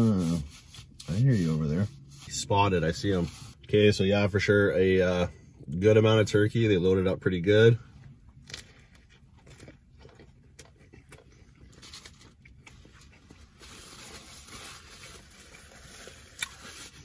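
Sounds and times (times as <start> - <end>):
close chewing of sandwich: 8.1 - 17.0
paper napkin rustling: 13.4 - 17.0.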